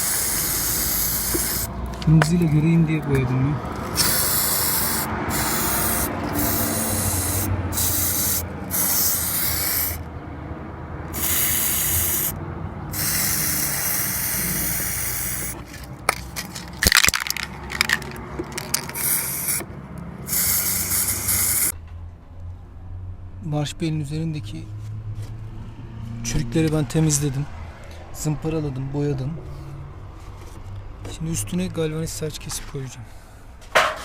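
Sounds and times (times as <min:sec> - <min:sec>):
spray paint can hissing: 0:00.0 - 0:02.1, 0:03.7 - 0:10.0, 0:11.1 - 0:21.8.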